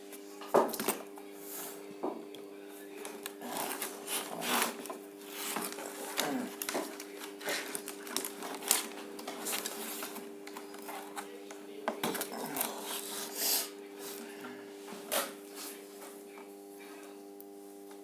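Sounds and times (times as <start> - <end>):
low electrical hum: 0.0 - 18.0
wires and tools scraping and clicking: 3.0 - 13.3.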